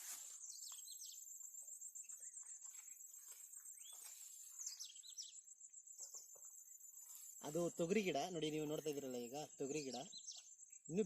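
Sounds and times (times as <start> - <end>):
insects trilling: 0.0 - 11.0
soft rustles: 2.6 - 4.8.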